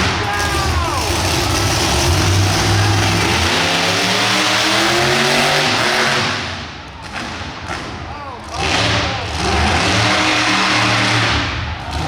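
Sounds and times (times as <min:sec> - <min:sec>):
truck engine revving hard: 0:00.0 - 0:12.0.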